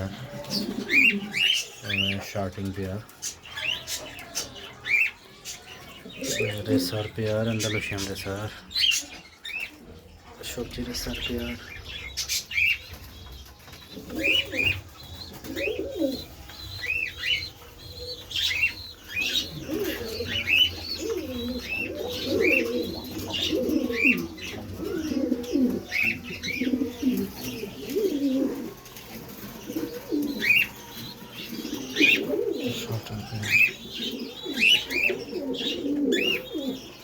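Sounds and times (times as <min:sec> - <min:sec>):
pigeons cooing: 0:00.0 - 0:37.0
small birds chirping: 0:00.0 - 0:37.0.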